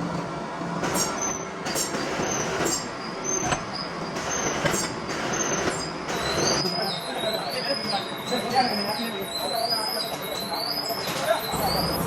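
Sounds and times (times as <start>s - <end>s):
metalworking machinery running: 0.0s - 12.0s
high metallic squeals: 5.3s - 12.0s.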